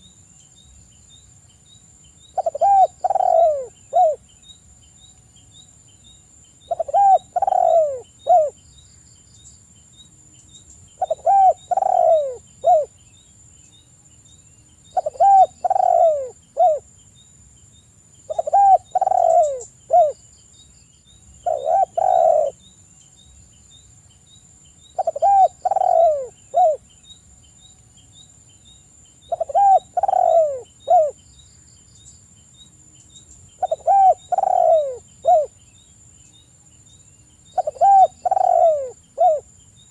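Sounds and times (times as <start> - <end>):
dove cooing: 2.4 - 4.2, 6.7 - 8.6, 11.0 - 13.0, 14.9 - 16.9, 18.3 - 20.2, 21.4 - 22.6, 25.0 - 26.8, 29.3 - 31.2, 33.6 - 35.6, 37.5 - 39.5.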